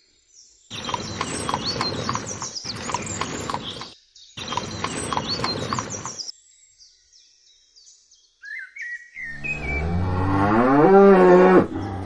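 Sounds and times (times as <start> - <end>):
cow mooing: 9.4 - 12.0.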